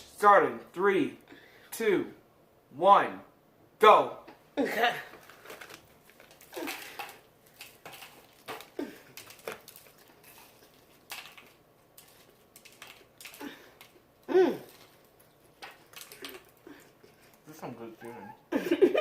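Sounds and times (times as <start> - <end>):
crunching and chewing: 5.1 - 17.6.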